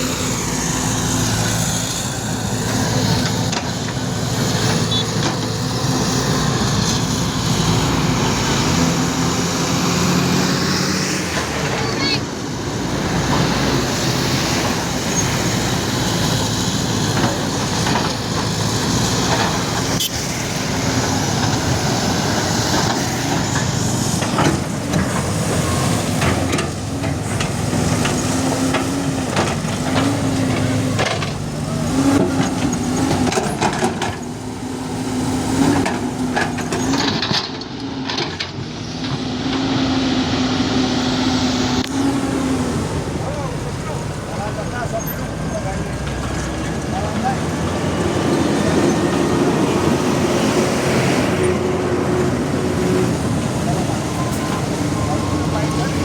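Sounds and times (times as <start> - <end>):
bulldozer diesel engine: 0.0 - 56.0
knocks and clanks: 22.7 - 31.4, 32.0 - 34.3.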